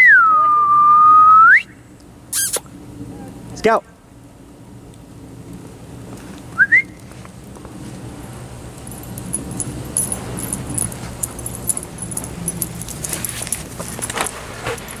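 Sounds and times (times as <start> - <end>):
person whistling rising whistles: 0.0 - 1.8, 6.6 - 7.0
dog collar tags jingling: 8.7 - 15.0.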